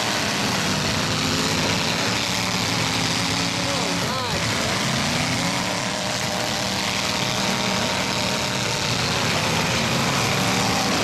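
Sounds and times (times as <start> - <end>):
truck engines revving: 0.0 - 11.0.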